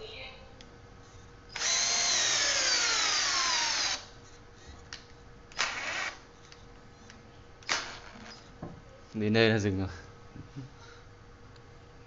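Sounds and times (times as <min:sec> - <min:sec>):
cordless drill driving a screw: 0:01.5 - 0:04.0, 0:05.6 - 0:06.2.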